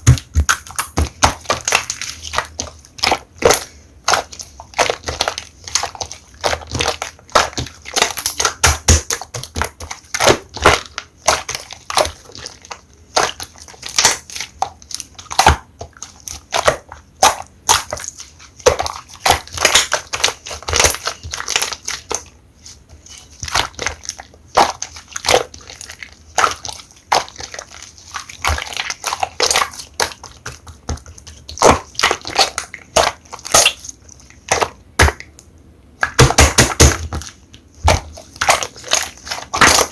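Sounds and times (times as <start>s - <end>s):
slime squeezed with sticky pops: 23.4s - 35.4s, 36.0s - 39.9s.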